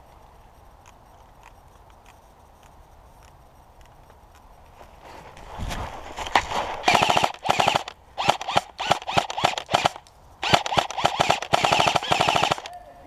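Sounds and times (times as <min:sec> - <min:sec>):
gearbox whirring: 0:06.8 - 0:12.7
airsoft rifle automatic bursts: 0:06.8 - 0:12.8.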